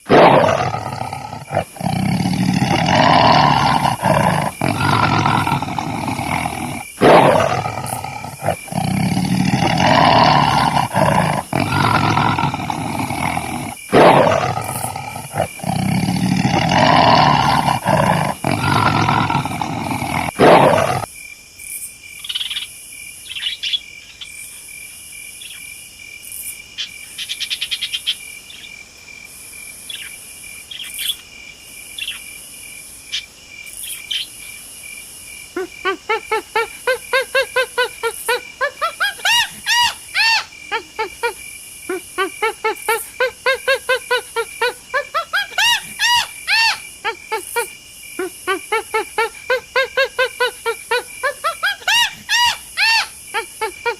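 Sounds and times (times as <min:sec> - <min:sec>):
lion roaring: 0:00.0 - 0:21.1
insects trilling: 0:00.0 - 0:53.9
birds chirping: 0:00.2 - 0:21.1.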